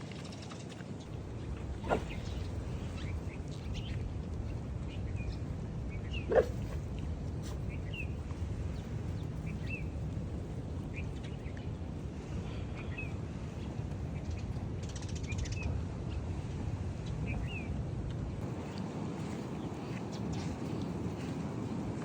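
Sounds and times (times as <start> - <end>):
small birds chirping: 0.4 - 12.0
steady low rumble: 1.0 - 22.0.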